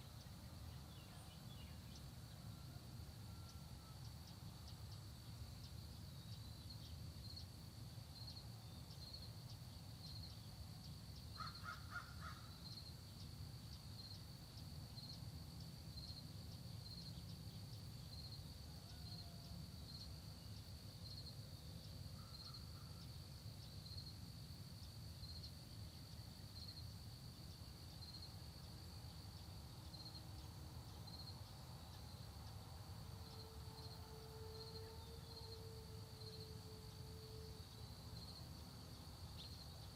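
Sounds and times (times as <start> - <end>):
insect trilling: 11.3 - 12.9
crow cawing: 11.4 - 12.5.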